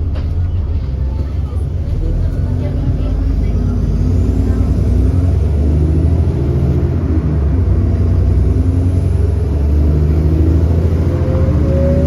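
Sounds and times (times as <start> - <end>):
bus diesel engine under load: 0.0 - 12.0.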